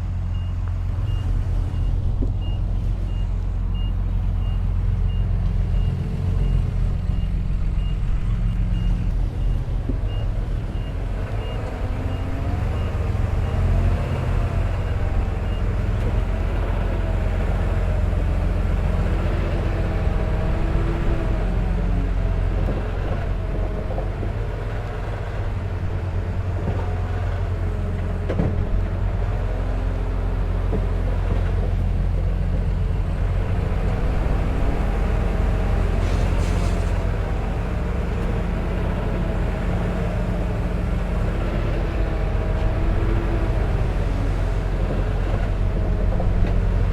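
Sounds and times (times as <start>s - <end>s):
heavy diesel machinery running: 0.0s - 46.9s.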